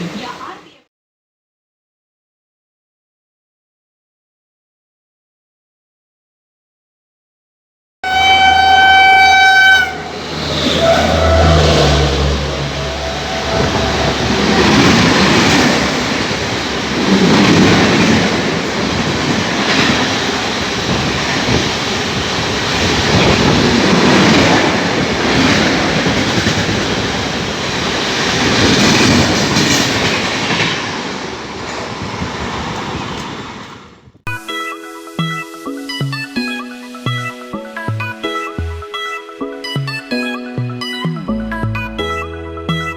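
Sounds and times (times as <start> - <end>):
train horn blast: 8.0 - 15.1
train coaches rolling by: 8.0 - 34.1.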